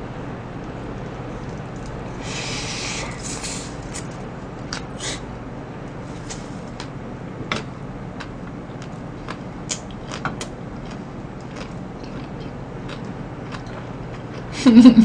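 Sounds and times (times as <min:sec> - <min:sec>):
steady background hiss: 0:00.0 - 0:08.0
person chewing food: 0:08.2 - 0:14.6.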